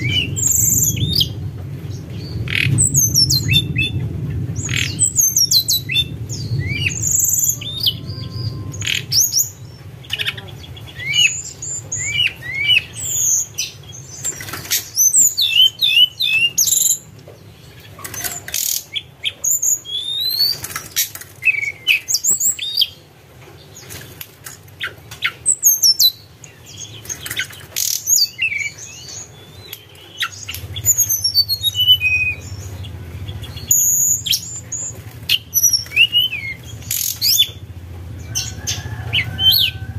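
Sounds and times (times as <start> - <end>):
bird singing whistled notes: 2.2 - 4.0, 4.6 - 9.7, 14.9 - 17.0, 18.6 - 20.6, 27.8 - 37.6
low hum: 30.4 - 39.9.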